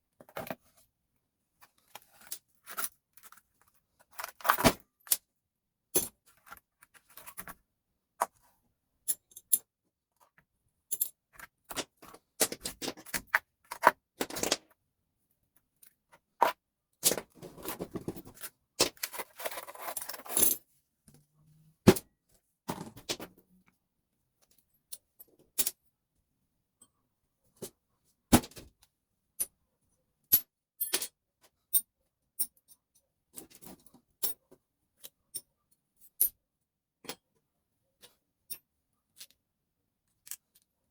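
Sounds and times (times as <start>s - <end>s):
metal parts scraping and rattling: 17.5s - 20.5s.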